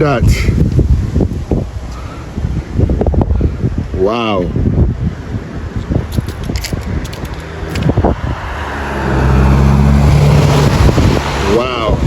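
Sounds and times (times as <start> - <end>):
microphone crackle and clicks: 5.7 - 8.1
engine humming: 6.7 - 11.7.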